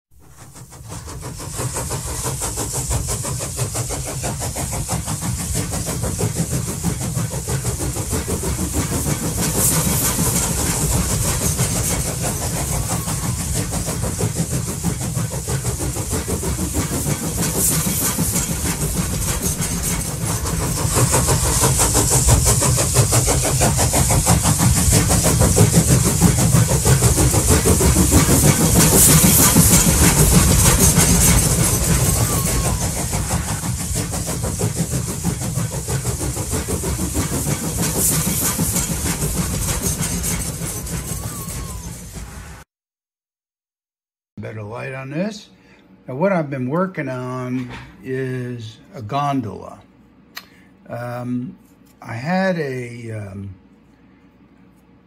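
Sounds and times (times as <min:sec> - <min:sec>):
train rumbling and clattering: 0:00.1 - 0:42.6.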